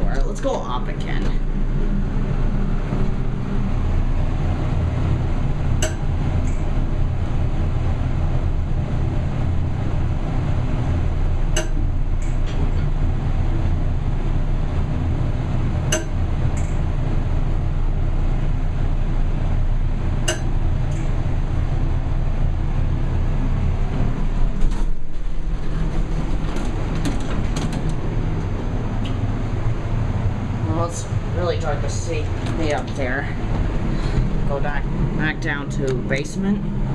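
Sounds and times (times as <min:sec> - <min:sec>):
elevator running hum: 0:00.0 - 0:36.9
elevator indicator clicks: 0:05.8 - 0:06.7, 0:11.5 - 0:12.4, 0:15.9 - 0:16.8, 0:20.2 - 0:21.2.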